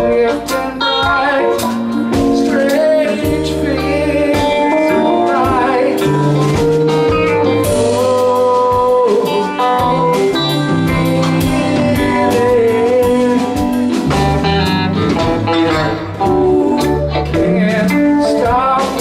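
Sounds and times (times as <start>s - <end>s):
live rock band playing: 0.0s - 19.0s
wavering lead melody: 0.0s - 19.0s.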